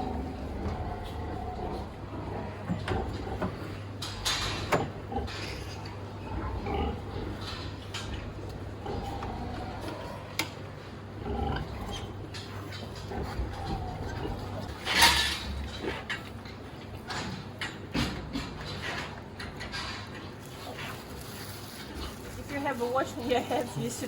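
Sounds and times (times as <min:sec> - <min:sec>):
pigs grunting and squealing: 0:00.0 - 0:22.8
steady low hum: 0:00.0 - 0:24.0.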